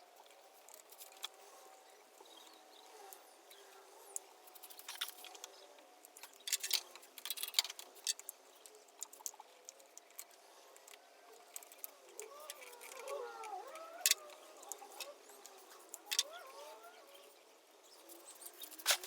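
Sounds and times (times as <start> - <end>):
light clicks and rattles: 3.5 - 16.4.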